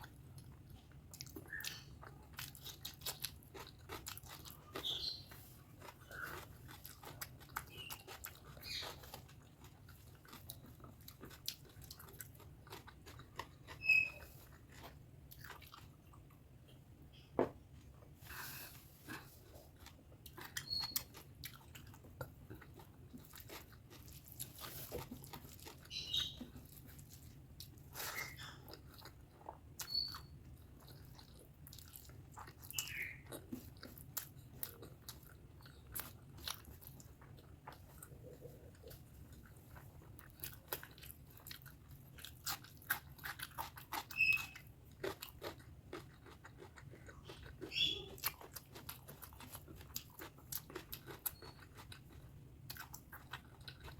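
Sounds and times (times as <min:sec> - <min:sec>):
wet chewing and smacking: 0:00.0 - 0:17.2, 0:19.0 - 0:53.9
squeaky mouth noises: 0:13.6 - 0:14.5, 0:20.5 - 0:21.2, 0:29.8 - 0:30.4, 0:47.2 - 0:48.3.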